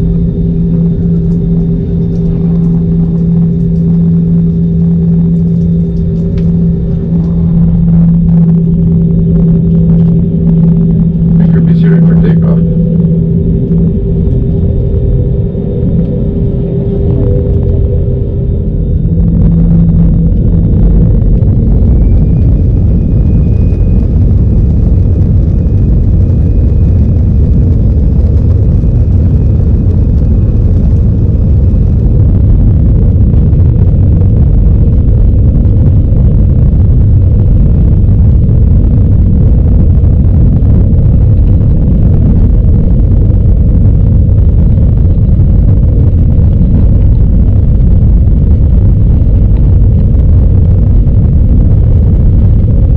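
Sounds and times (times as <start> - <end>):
high engine whine: 0.0 - 52.9
jet engines deep rumble: 0.0 - 52.9.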